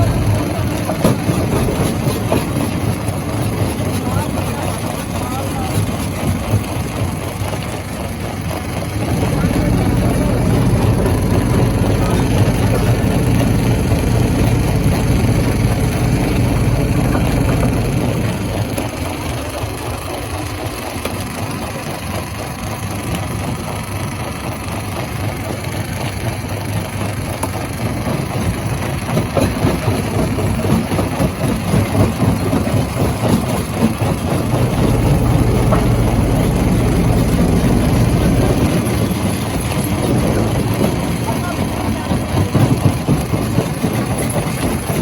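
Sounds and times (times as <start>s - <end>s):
deep rumble: 0.0s - 3.0s, 9.0s - 19.0s, 34.2s - 41.4s
stone crusher drone: 0.0s - 5.8s, 8.4s - 19.4s, 33.4s - 45.0s.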